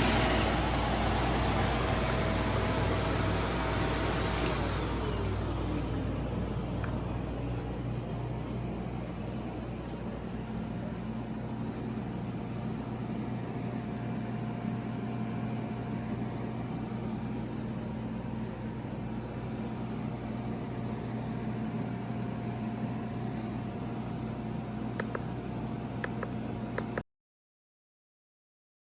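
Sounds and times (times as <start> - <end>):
motor spinning down: 0.0 - 7.0
vacuum cleaner motor running: 0.0 - 7.6.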